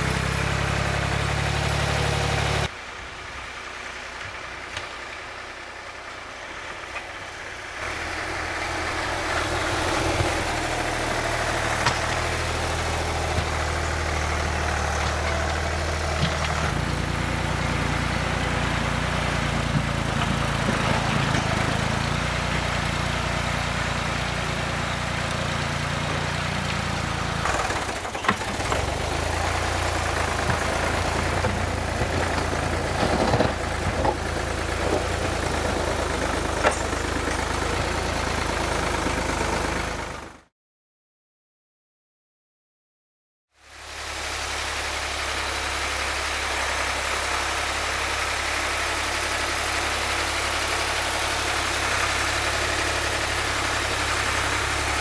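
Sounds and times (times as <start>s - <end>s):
tractor engine running: 0.0s - 40.5s, 43.7s - 55.0s.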